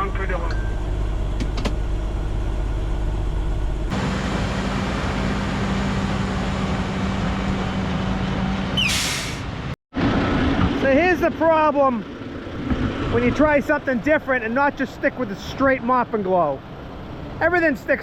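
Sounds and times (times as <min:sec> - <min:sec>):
diesel truck engine running: 0:00.0 - 0:18.0
road noise with hum: 0:00.0 - 0:18.0
short sharp hiss: 0:08.8 - 0:09.5.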